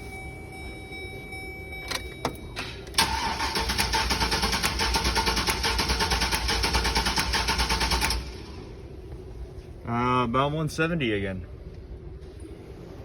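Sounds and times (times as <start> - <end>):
engine cranking without firing: 2.9 - 8.5.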